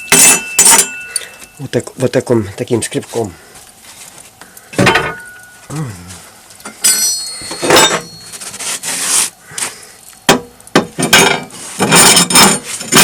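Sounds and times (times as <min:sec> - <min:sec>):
metal clinks and knocks: 0:00.0 - 0:01.6, 0:04.8 - 0:05.7, 0:06.6 - 0:08.6
scraper scraping coals: 0:02.8 - 0:04.8, 0:05.6 - 0:09.9, 0:10.9 - 0:13.0.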